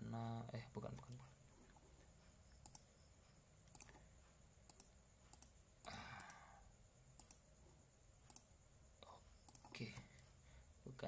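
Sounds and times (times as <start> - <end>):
faint mouse clicks: 0.8 - 1.8, 2.6 - 2.9, 3.6 - 4.1, 4.7 - 6.4, 7.2 - 7.4, 8.3 - 8.5, 9.4 - 10.3.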